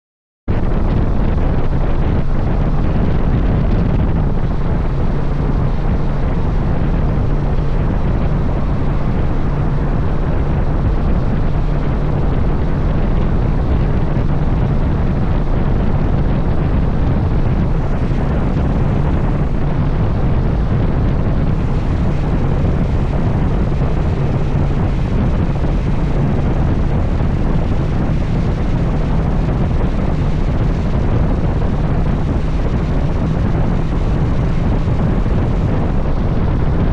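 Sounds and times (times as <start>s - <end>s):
motorcycle engine hum: 0.5s - 36.9s
wind buffeting microphone: 0.5s - 36.9s.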